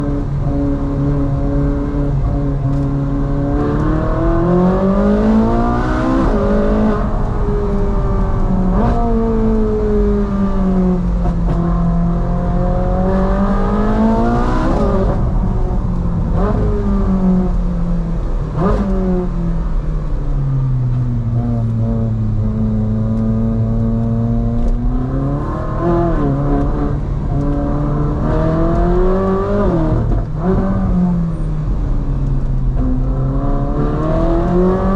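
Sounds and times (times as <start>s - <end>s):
sports car engine accelerating: 0.0s - 34.9s.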